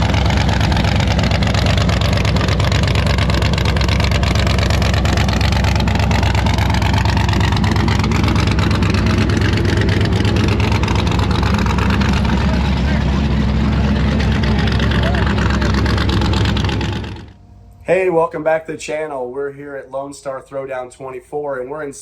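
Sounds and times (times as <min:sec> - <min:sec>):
vehicle engine running loudly: 0:00.0 - 0:17.8.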